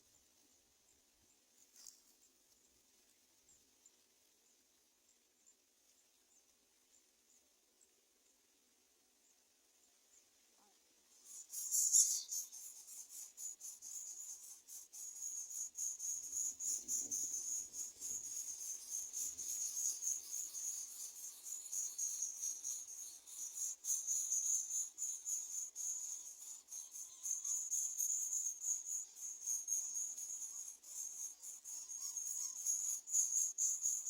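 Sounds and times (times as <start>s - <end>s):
insects trilling: 11.1s - 34.0s.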